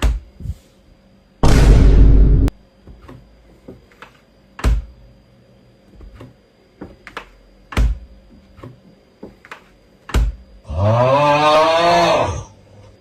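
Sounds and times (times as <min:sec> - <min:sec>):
loud thumps: 0:01.4 - 0:02.6.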